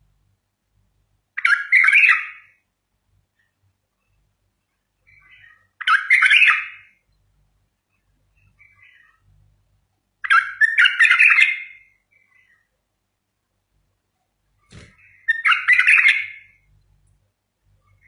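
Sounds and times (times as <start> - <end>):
bird warbling song: 1.4 - 2.6, 3.4 - 9.4, 10.2 - 12.8, 14.6 - 16.9
soft short bird calls: 5.0 - 7.0, 7.9 - 9.4, 10.2 - 12.8, 14.6 - 16.7.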